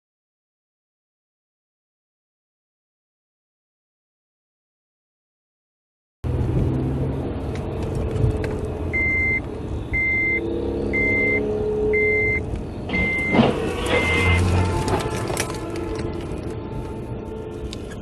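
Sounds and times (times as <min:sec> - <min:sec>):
vehicle engine and road noise: 0:06.2 - 0:18.0
electronic warning beeper: 0:09.0 - 0:14.6.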